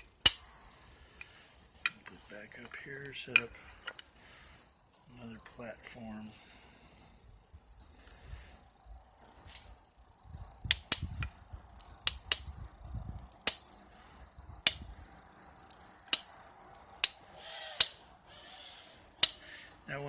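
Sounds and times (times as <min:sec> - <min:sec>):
striker tapping stone: 0:13.4 - 0:13.7, 0:17.8 - 0:18.0, 0:19.2 - 0:19.4.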